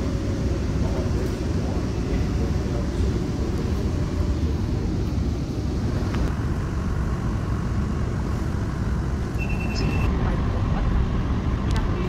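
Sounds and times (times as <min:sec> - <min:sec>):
vehicle rumble: 0:00.0 - 0:12.0
short high beep: 0:09.4 - 0:10.1.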